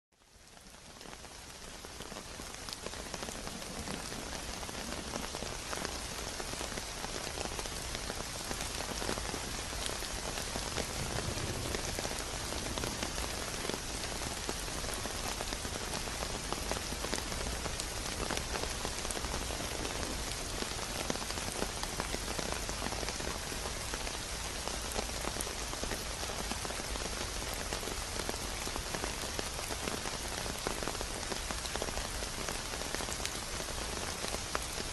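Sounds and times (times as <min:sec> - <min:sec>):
heavy rain falling: 0:00.2 - 0:34.9.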